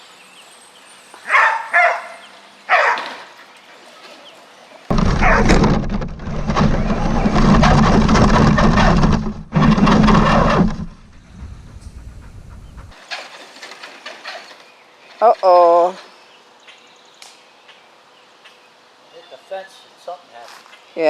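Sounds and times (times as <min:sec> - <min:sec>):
dog barking: 0:01.3 - 0:03.2.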